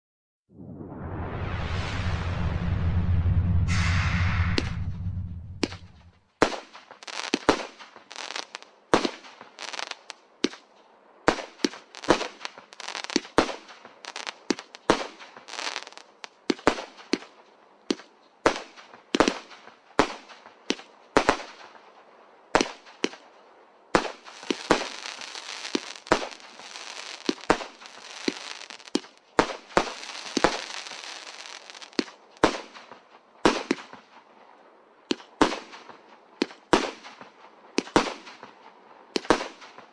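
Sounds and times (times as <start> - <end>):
firework crackling: 0.6 - 10.2, 11.4 - 16.6, 24.0 - 32.9
firework bangs: 24.0 - 32.8.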